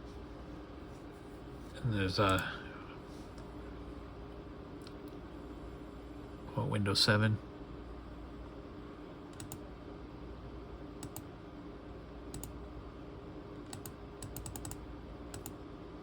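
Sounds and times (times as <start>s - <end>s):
faint steady hum: 0.0s - 16.0s
laptop keys clicking: 9.4s - 9.6s, 11.0s - 11.3s, 13.7s - 15.6s.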